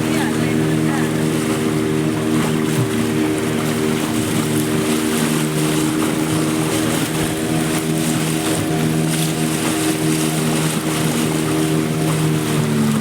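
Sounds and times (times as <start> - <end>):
motorboat engine running: 0.0 - 13.0.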